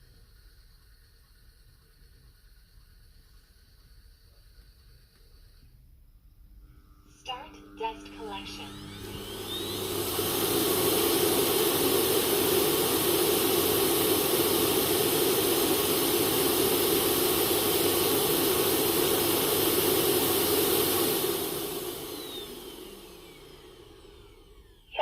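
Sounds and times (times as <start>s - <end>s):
suction motor whirring: 7.2s - 24.9s.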